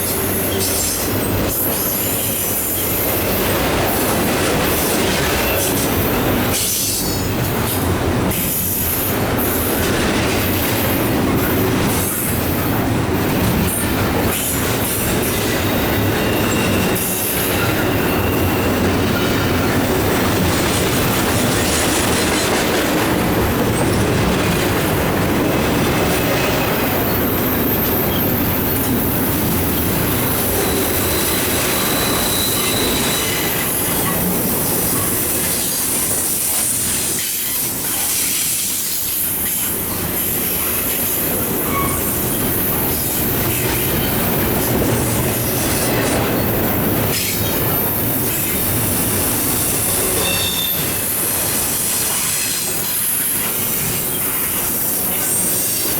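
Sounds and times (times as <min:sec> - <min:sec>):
train wheels rumbling on rails: 0:00.0 - 0:55.9
wheels squealing: 0:15.3 - 0:24.0, 0:29.8 - 0:34.3, 0:41.3 - 0:46.2.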